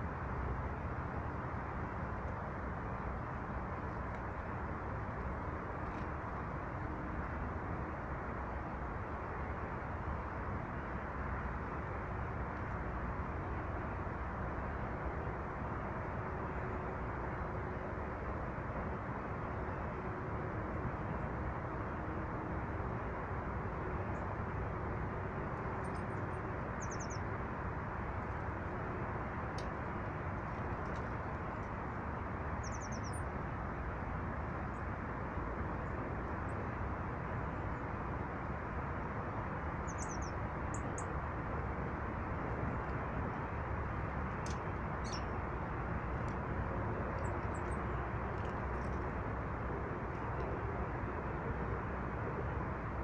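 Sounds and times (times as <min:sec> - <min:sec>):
steady rushing noise: 0:00.0 - 0:53.0
small bird chirps: 0:26.8 - 0:27.2, 0:32.6 - 0:33.2, 0:39.9 - 0:41.1, 0:45.0 - 0:45.3.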